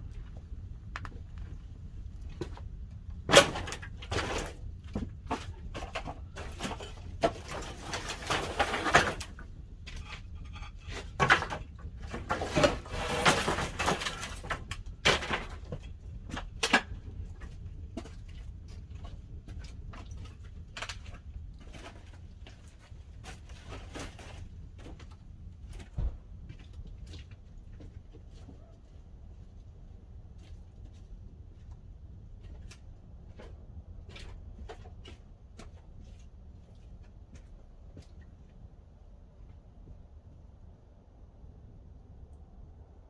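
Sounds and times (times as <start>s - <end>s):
steady low rumble: 0.0s - 6.4s, 29.0s - 43.0s.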